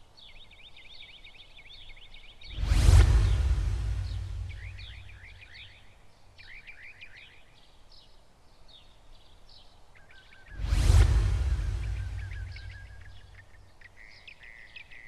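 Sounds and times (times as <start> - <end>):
faint bird chirping: 0.0 - 15.0
whoosh sound effect: 2.5 - 5.4, 10.5 - 13.4
low steady hum: 10.6 - 13.4.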